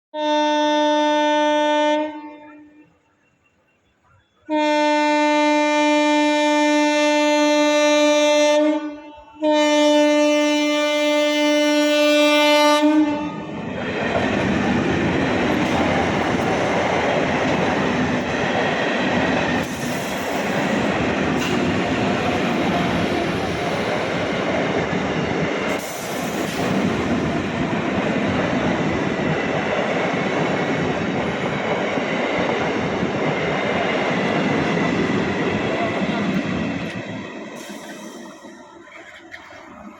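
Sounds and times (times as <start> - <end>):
train horn blasts: 0.1 - 3.0, 4.4 - 13.5
train wheels rumbling and clattering: 13.1 - 39.9.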